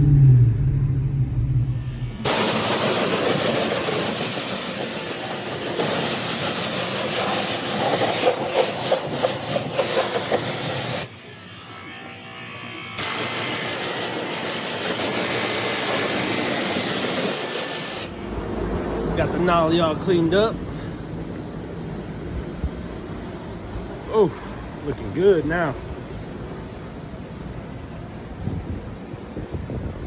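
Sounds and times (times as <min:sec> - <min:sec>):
water spraying onto truck: 0:02.1 - 0:11.1, 0:13.0 - 0:18.4.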